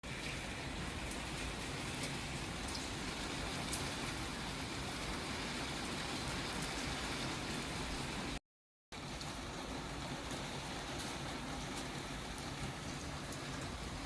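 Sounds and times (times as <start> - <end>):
raindrop ticks: 0.1 - 2.9, 3.5 - 4.1, 9.0 - 13.9
steady rain hiss: 0.1 - 8.4, 9.0 - 14.0.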